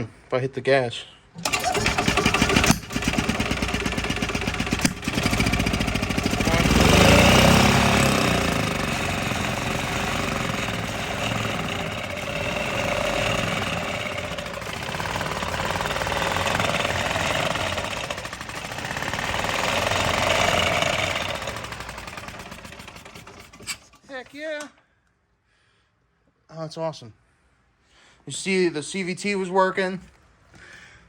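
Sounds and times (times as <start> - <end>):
golf cart engine rattling: 1.4 - 24.6.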